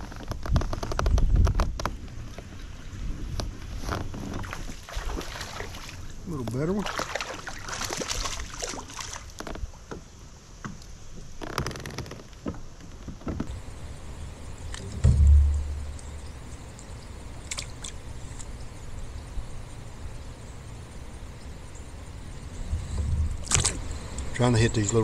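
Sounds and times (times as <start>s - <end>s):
wind rumble on microphone: 0.0s - 5.2s, 13.0s - 25.0s
loud low thump: 14.8s - 16.4s.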